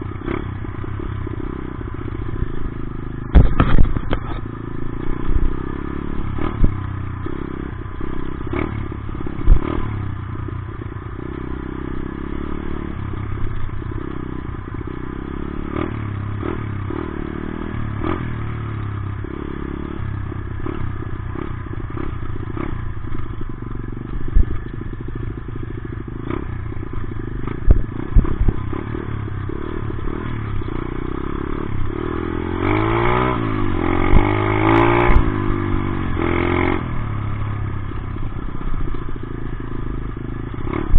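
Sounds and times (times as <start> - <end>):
dirt bike engine revving: 0.0 - 40.9
knocks and rattles: 3.3 - 4.4.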